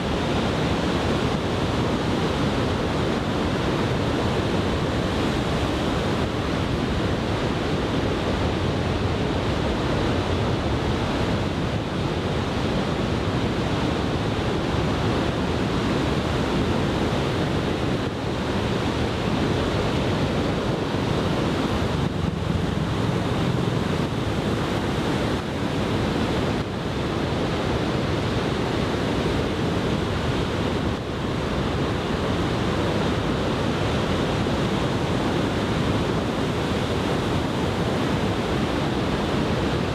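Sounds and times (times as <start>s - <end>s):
heavy surf crashing waves: 0.0s - 39.9s
wind buffeting microphone: 16.1s - 39.9s.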